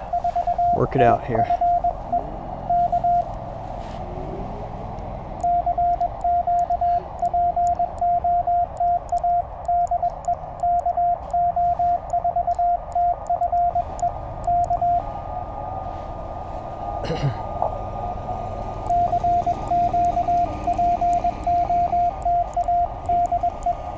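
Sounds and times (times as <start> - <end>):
faint high steady tone: 0.0 - 3.8, 4.8 - 15.9, 18.1 - 23.9
radio band noise hiss: 0.0 - 5.1, 11.2 - 17.3
morse code tone: 0.0 - 15.9, 17.9 - 23.9.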